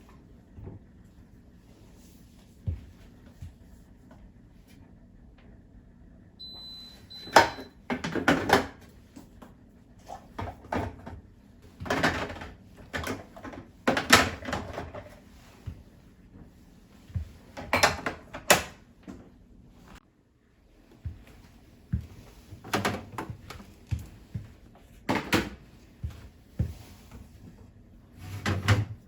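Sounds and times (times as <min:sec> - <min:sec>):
plastic and glass shelves clattering: 0:11.8 - 0:15.2.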